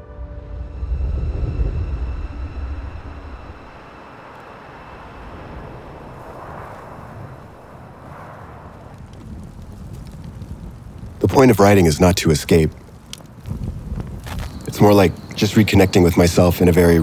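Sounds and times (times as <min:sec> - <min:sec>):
steady rushing noise: 0:00.9 - 0:17.0.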